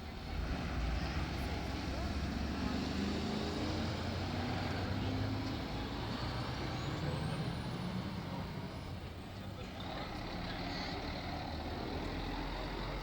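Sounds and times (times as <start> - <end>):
diesel truck engines running: 0.0 - 13.0.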